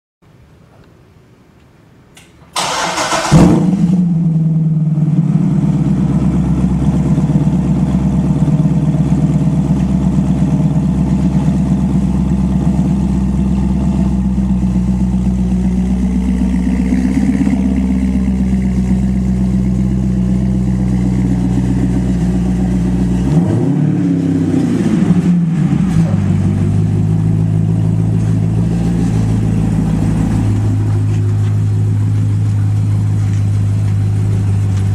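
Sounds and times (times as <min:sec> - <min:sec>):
engine cranking: 0:02.6 - 0:03.5
loud engine fast idle: 0:02.6 - 0:04.4.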